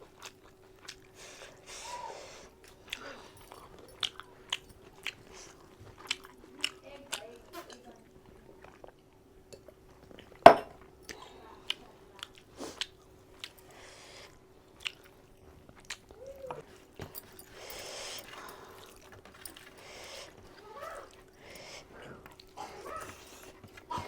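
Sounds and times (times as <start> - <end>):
chewing and lip smacks: 0.0 - 1.4, 2.6 - 10.4, 11.1 - 24.0.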